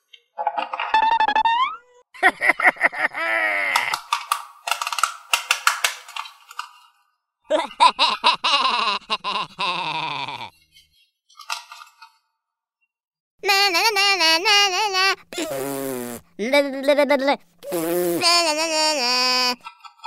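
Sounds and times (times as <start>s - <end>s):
plastic toy parts clicking: 3.7s - 6.8s.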